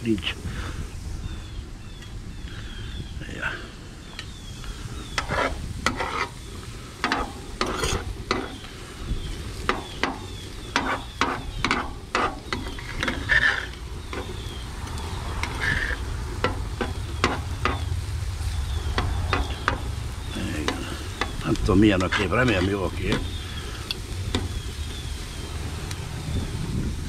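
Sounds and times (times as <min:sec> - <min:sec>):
meat sizzling in a pan: 0:03.8 - 0:27.0
spatula scraping a pan: 0:04.9 - 0:25.4
low rumble: 0:13.7 - 0:27.0.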